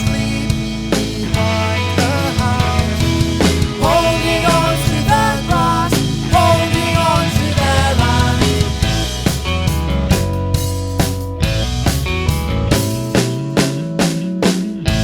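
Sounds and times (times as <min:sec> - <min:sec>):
bass line: 0:00.0 - 0:15.0
drum kit beat: 0:00.0 - 0:15.0
melodic lead: 0:00.0 - 0:15.0
rock music: 0:00.0 - 0:15.0.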